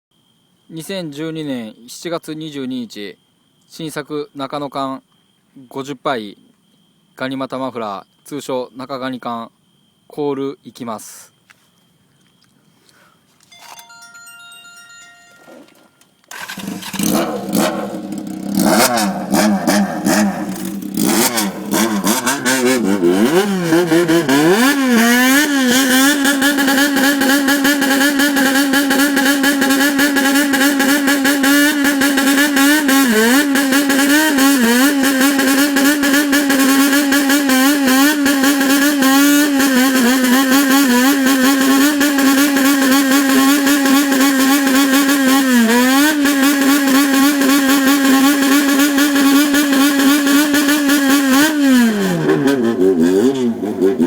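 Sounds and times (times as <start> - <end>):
motorcycle engine revving: 16.3 - 54.0.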